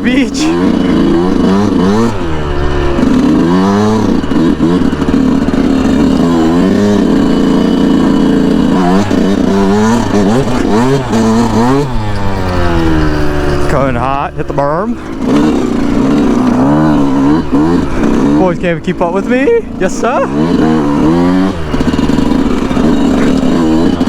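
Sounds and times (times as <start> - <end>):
two-stroke motorcycle engine revving: 0.0 - 24.0.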